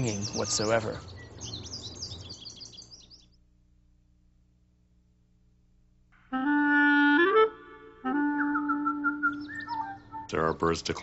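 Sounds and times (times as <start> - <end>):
bird chirping: 0.0 - 3.4, 8.4 - 11.0
woodwind holding a note: 6.2 - 10.4.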